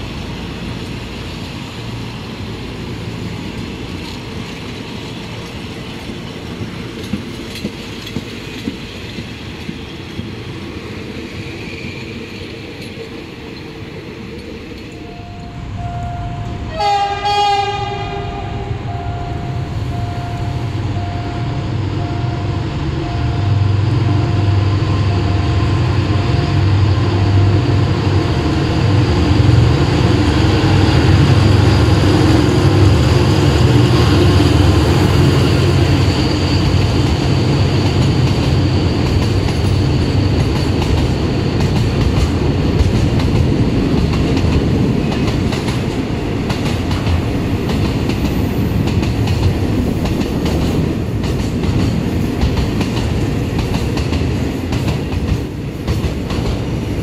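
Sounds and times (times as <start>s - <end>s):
train rumbling past: 0.0s - 57.0s
train horn: 15.0s - 27.8s.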